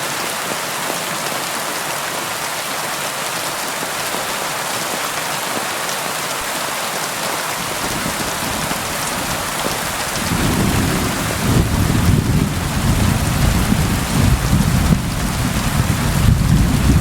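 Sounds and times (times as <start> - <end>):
rain hiss: 0.0 - 17.0
rolling thunder: 7.8 - 17.0.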